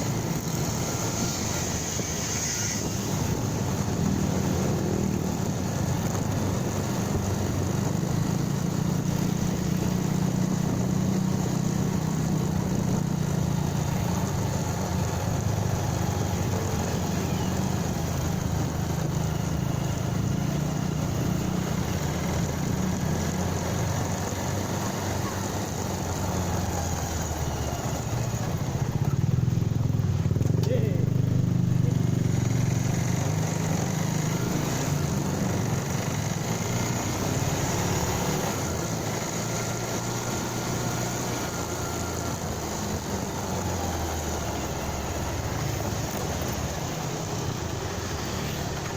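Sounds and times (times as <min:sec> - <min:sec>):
rushing noise: 0:00.0 - 0:05.2
motorcycle engine running: 0:00.0 - 0:48.9.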